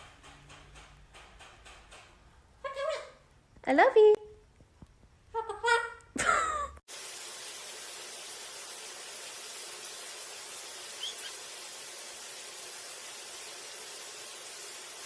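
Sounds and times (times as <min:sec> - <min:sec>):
steady hiss: 0:06.9 - 0:15.0
bird squawking: 0:11.0 - 0:11.4
faint bird chirp: 0:11.0 - 0:11.4.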